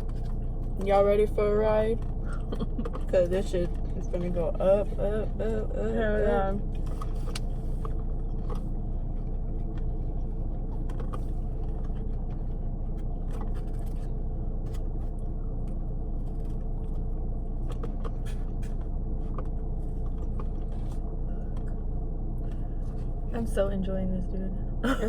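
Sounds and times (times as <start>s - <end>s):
low rumble: 0.0s - 25.0s
people eating clicks and crunches: 2.0s - 4.3s, 6.6s - 21.7s.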